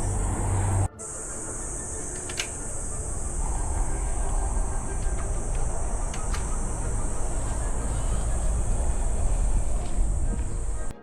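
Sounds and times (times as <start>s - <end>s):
motorcycle engine running: 0.0s - 11.0s
steady high hiss: 0.0s - 11.0s
wind rumble: 0.0s - 11.0s.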